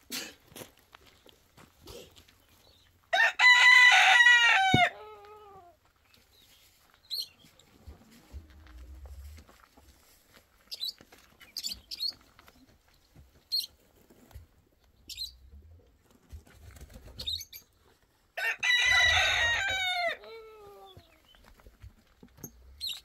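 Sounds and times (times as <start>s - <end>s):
rooster crowing: 3.1s - 5.2s, 18.4s - 20.8s.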